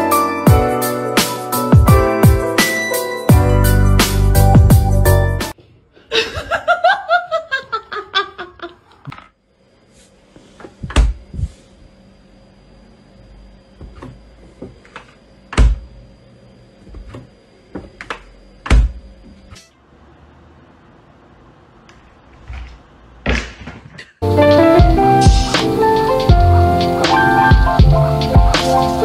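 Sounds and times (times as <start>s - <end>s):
person laughing: 6.0s - 9.1s
dull thunks: 10.8s - 11.4s.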